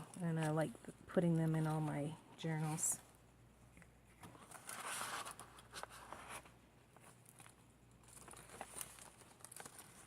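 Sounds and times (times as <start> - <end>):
paper pages rustling: 4.1 - 10.0.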